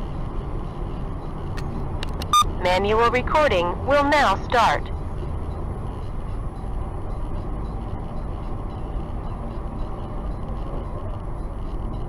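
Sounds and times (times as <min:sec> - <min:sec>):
car engine rumble: 0:00.0 - 0:12.0
tyres on road: 0:00.0 - 0:12.0.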